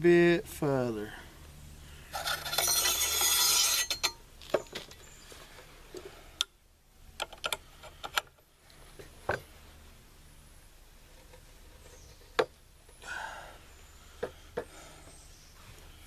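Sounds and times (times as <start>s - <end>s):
rifle parts scraping: 2.1s - 5.0s
parts clicking and tapping: 7.2s - 8.4s.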